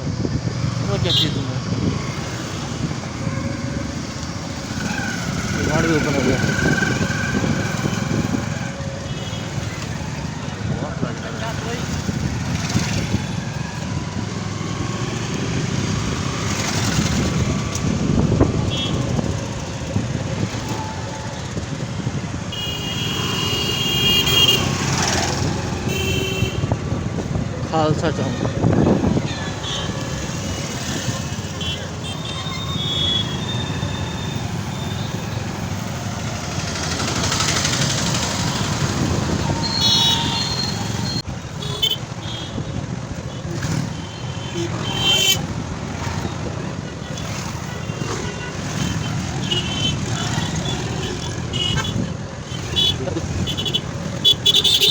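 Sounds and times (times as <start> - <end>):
wind rumble on microphone: 0.0 - 1.0, 1.6 - 9.0, 11.9 - 22.5, 25.2 - 31.6, 37.8 - 41.5
motorcycle engine running: 2.0 - 8.7, 35.0 - 41.9.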